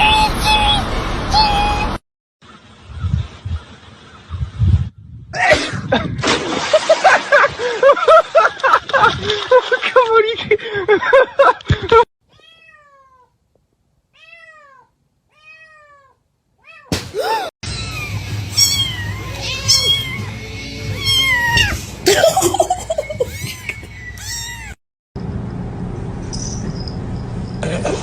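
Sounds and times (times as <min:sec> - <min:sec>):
cat meowing: 0:12.3 - 0:13.3, 0:14.2 - 0:16.9, 0:17.8 - 0:21.8, 0:23.3 - 0:24.8.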